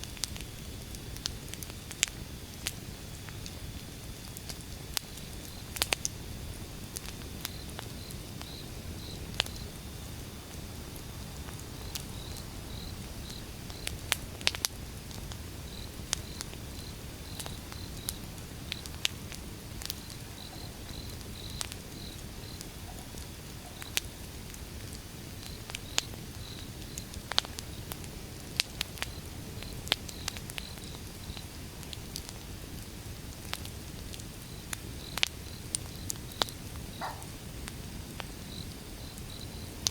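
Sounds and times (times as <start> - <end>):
firewood crackling and popping: 0.0 - 39.9
fire flames rushing: 0.2 - 39.9
faint high chirping: 36.9 - 37.4.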